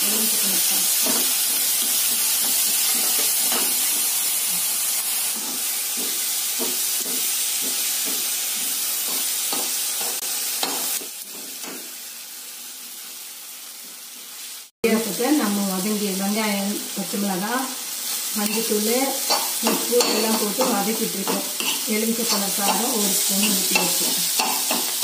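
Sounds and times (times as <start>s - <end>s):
onions sizzling in oil: 0.0s - 25.0s
metal spatula scraping pan: 18.4s - 25.0s.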